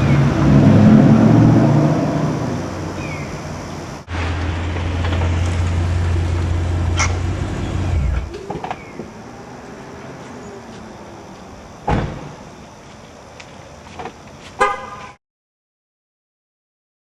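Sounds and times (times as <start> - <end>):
car engine idling deeply: 2.2 - 9.4.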